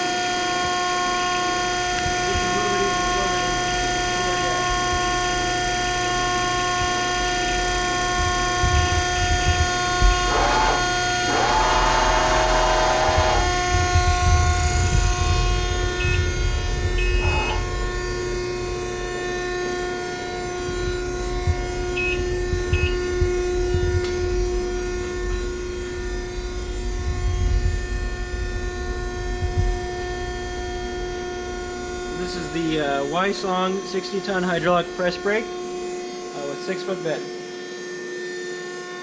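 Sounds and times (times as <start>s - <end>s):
hydraulic pump motor humming: 0.0s - 26.0s
low rumble: 2.0s - 32.8s.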